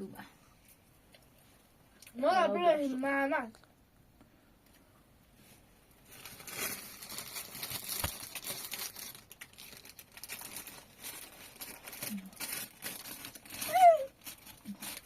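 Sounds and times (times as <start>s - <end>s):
material crinkling and rustling: 5.4s - 15.0s.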